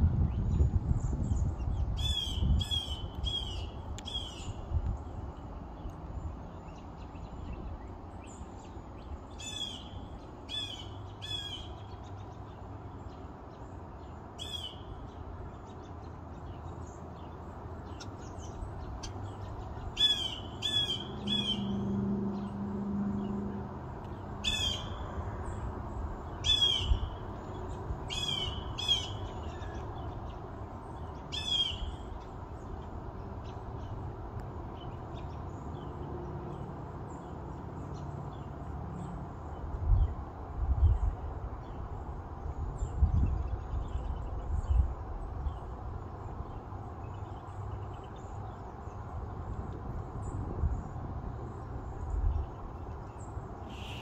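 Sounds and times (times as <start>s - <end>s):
bird calling sharp notes: 20.0s - 21.8s, 53.7s - 54.0s.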